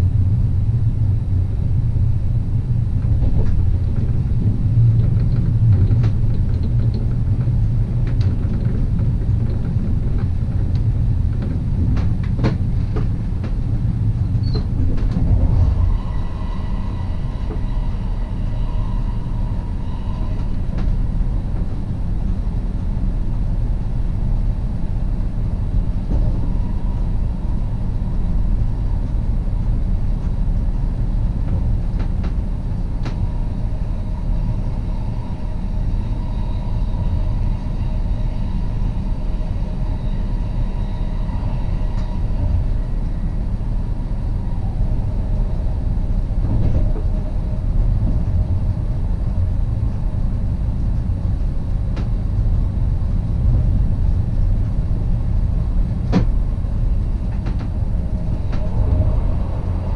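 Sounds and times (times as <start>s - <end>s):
faint whining tones: 0.0s - 59.9s
train wheels rumbling on rails: 0.0s - 59.9s.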